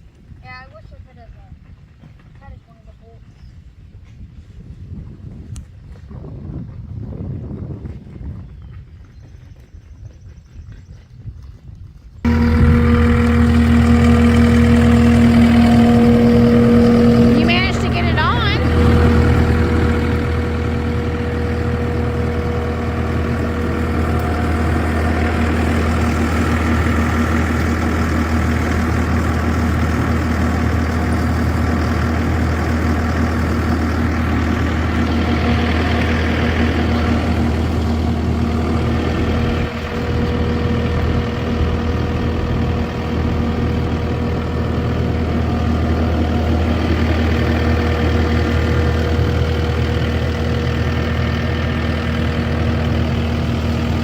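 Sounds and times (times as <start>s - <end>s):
heavy engine idling: 12.2s - 54.0s.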